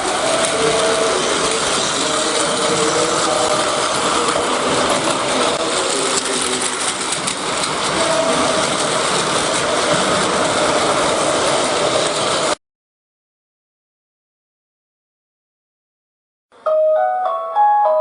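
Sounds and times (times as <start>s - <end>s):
toy trains whirring and clattering: 0.0s - 12.6s.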